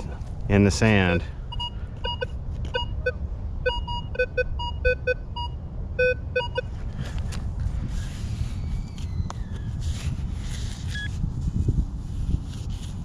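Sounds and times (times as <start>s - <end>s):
metal detector beeps: 1.0s - 6.7s, 10.9s - 11.2s.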